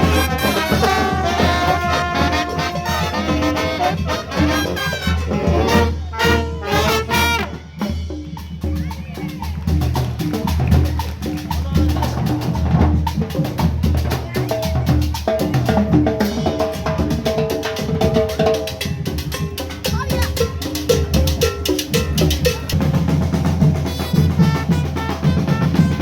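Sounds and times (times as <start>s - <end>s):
trumpets: 0.0s - 7.9s, 23.7s - 26.0s
drums: 0.0s - 26.0s
marching band playing dance music: 0.0s - 26.0s.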